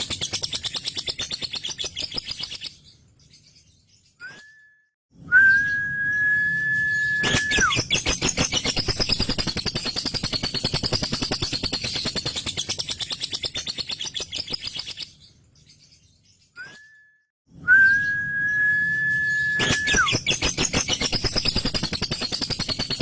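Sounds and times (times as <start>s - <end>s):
lovebird high whistle: 5.3s - 8.0s, 17.7s - 22.9s.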